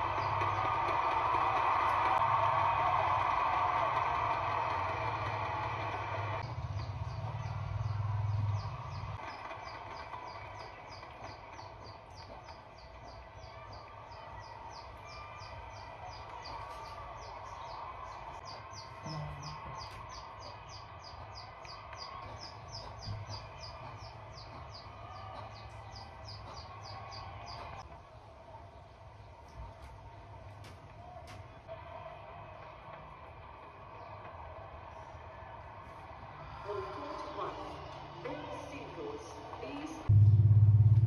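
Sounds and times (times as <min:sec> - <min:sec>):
low hum: 0:00.0 - 0:11.4, 0:40.0 - 0:41.0
bird chirping: 0:06.5 - 0:27.8.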